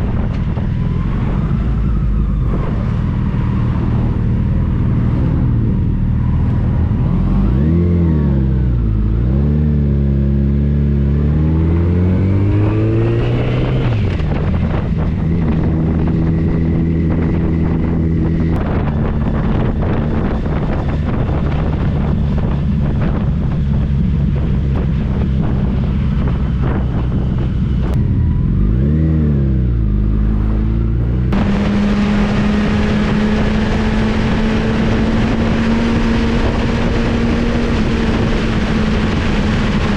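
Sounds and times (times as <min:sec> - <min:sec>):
motorcycle engine running: 0:13.4 - 0:39.9.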